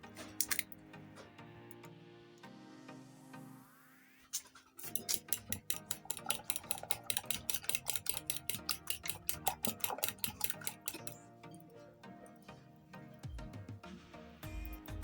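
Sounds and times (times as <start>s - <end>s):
whisk beating against bowl: 4.8s - 11.2s.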